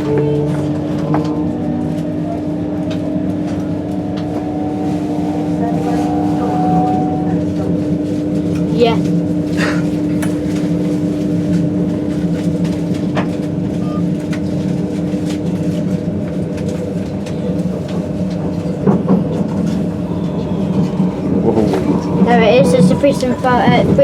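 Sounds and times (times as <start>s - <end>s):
train mechanical drone: 0.0s - 24.0s
held tone: 3.5s - 7.4s, 19.4s - 24.0s.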